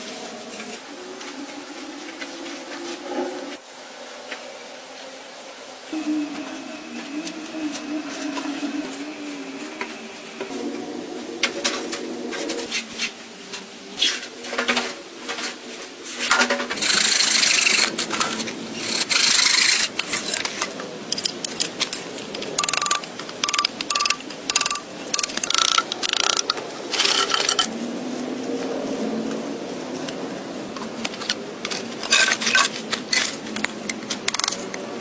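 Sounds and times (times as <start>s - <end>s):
rasping scraping strokes: 16.7s - 27.7s.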